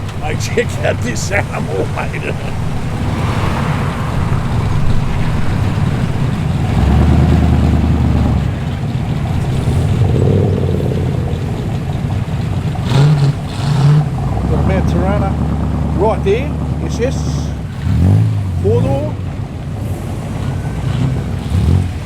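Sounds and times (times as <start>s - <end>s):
car engine rumbling and revving: 0.0s - 22.0s.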